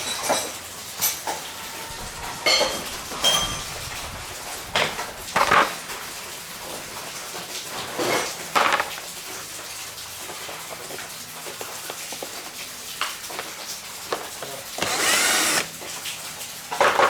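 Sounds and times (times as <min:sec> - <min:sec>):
metal tools clinking: 0:02.4 - 0:03.8.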